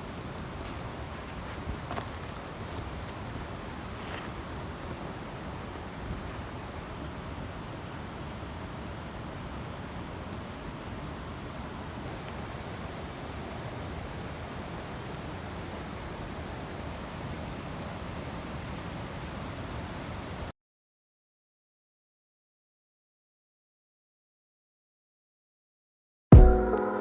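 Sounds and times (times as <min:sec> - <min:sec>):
campfire rushing: 0:00.0 - 0:20.5
fire crackles: 0:00.0 - 0:20.5.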